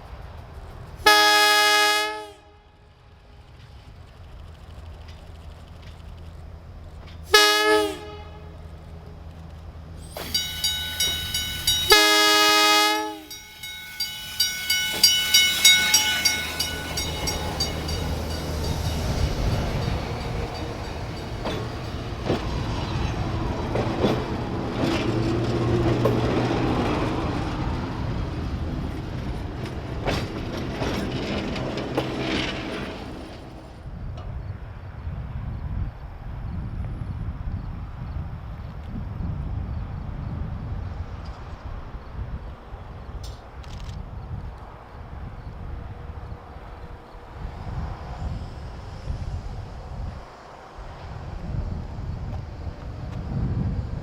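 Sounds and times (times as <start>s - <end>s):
train rumble and clickety-clack: 0.0s - 54.0s
train horn blasts: 1.0s - 2.8s, 7.3s - 8.8s, 10.2s - 20.0s
bell dinging rapidly: 10.2s - 12.0s, 13.3s - 20.8s.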